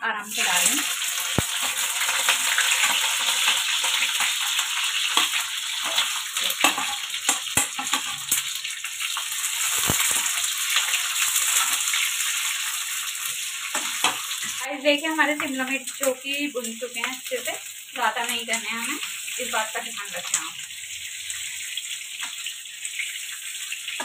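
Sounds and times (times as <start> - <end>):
peppers sizzling in hot oil: 0.0 - 24.0
spatula knocking and scraping pan: 1.6 - 8.4.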